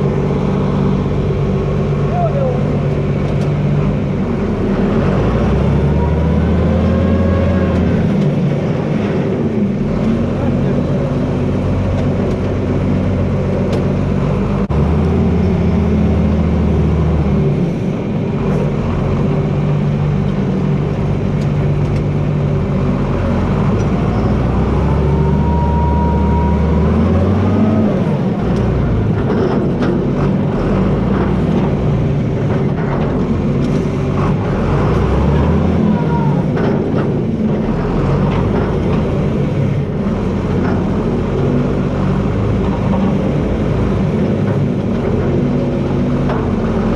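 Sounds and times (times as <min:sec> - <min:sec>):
diesel engine working under load: 0:00.0 - 0:46.9
rising and falling whine: 0:23.8 - 0:29.0.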